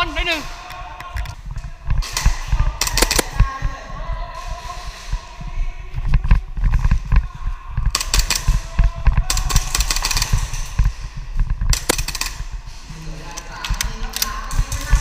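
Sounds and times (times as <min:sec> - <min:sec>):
airsoft pistols firing: 0:02.1 - 0:03.4, 0:07.9 - 0:12.6.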